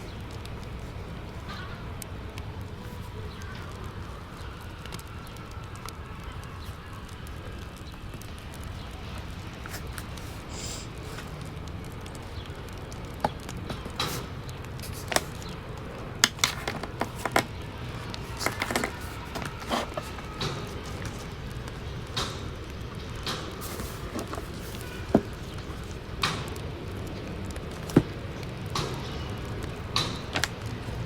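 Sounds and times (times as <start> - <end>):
fire crackling and popping: 0.0 - 16.7
wood fire rumbling: 0.0 - 31.0.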